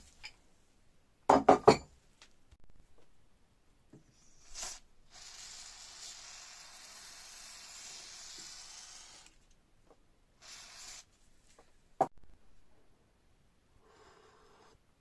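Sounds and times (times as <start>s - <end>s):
aerosol spray can hissing: 4.4s - 9.4s, 10.4s - 11.1s.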